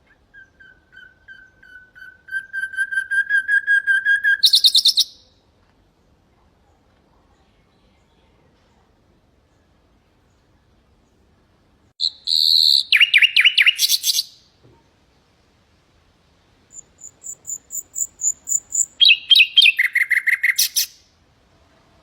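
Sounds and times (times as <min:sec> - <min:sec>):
nightingale singing: 0:00.0 - 0:05.4, 0:12.0 - 0:14.5, 0:16.7 - 0:21.2.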